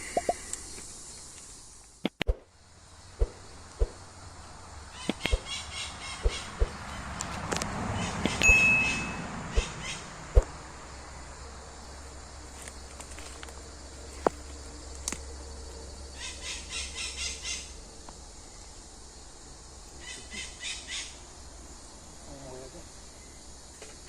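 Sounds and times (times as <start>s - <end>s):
rustle: 0.0s - 24.0s
high chirps: 8.2s - 10.0s
short high tone: 8.4s - 9.3s.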